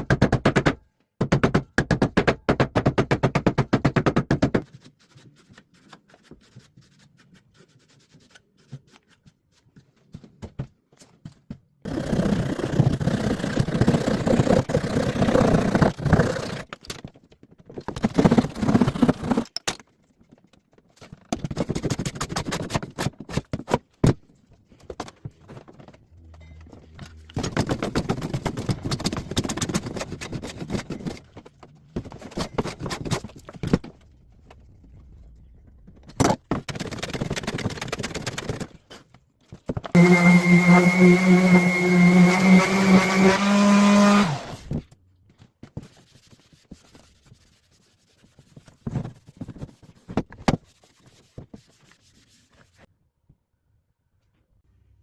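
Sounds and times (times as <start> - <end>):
woodworking noise bursts: 40.0 - 44.8.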